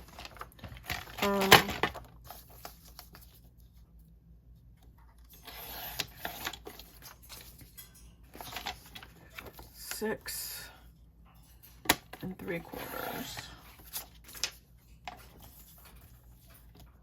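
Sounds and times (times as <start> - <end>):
paper rustling and scraping: 0.0 - 3.8, 5.3 - 7.7, 8.3 - 9.8, 12.4 - 16.9.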